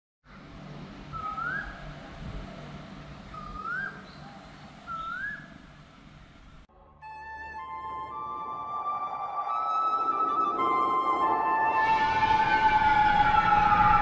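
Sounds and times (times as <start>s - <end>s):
low background noise: 0.3s - 14.0s
bird whistling call: 1.1s - 1.8s, 3.3s - 4.2s, 4.9s - 5.6s.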